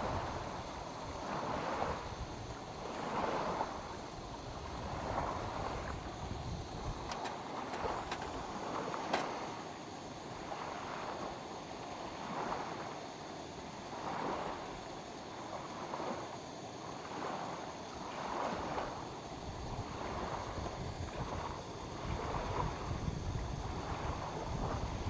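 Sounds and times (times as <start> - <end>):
wind rumble on microphone: 0.0 - 9.5, 18.1 - 25.0
small waves lapping on shore: 0.0 - 25.0.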